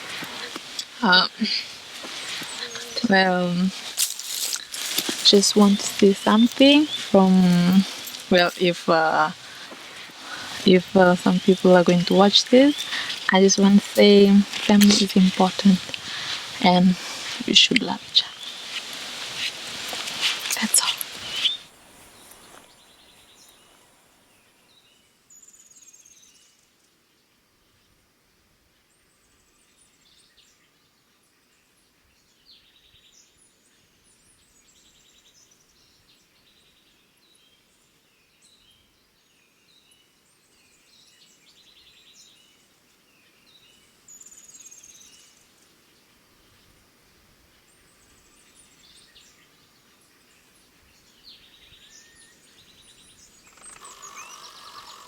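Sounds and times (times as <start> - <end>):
birds chirping and whistling: 0.0 - 23.3, 51.7 - 55.0
faint outdoor ambience: 0.0 - 55.0.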